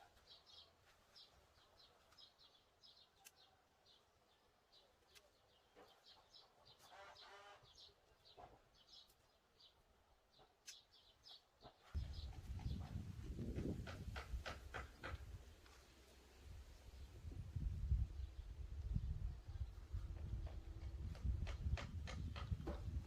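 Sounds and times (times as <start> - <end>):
small bird chirping: 0.0 - 15.8.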